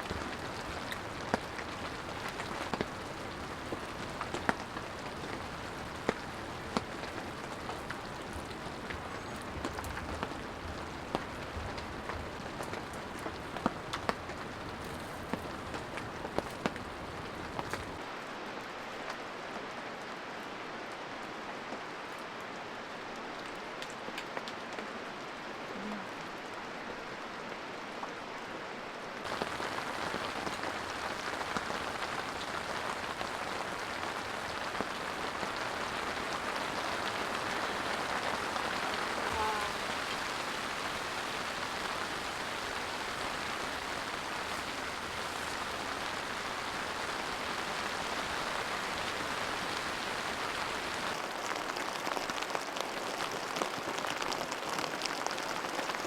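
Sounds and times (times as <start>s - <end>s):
raindrop ticks: 0.0s - 18.0s, 29.2s - 56.0s
steady rain: 0.0s - 56.0s.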